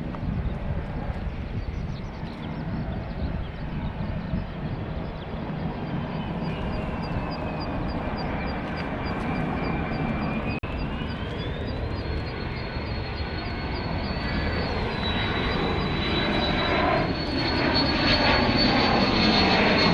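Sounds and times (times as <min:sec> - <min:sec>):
aircraft engine rumble: 0:00.0 - 0:19.9
turbine whine: 0:00.0 - 0:19.9.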